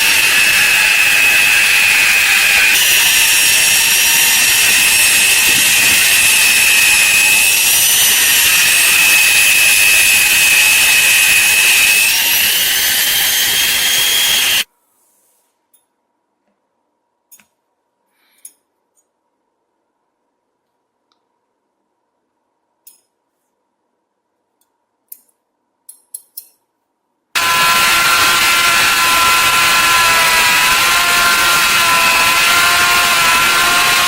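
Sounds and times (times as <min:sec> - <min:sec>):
power tool whining on metal: 0:00.0 - 0:14.7, 0:27.4 - 0:34.0.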